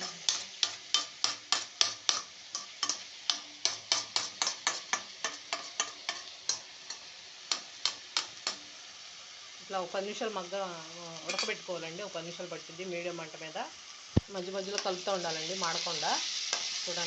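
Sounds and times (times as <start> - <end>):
spoon scraping a pan: 0.0 - 8.7, 11.2 - 11.7, 15.7 - 17.0.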